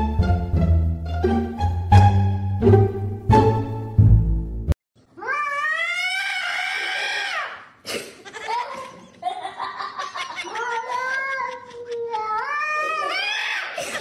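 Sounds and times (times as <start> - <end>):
cat yowling: 5.2 - 7.6, 12.2 - 13.6.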